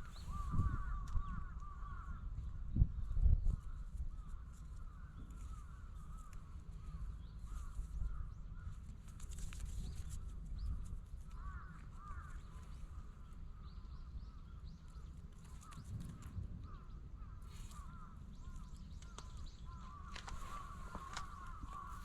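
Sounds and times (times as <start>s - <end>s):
wind rumble on microphone: 0.0s - 22.0s
birds calling: 11.3s - 22.0s.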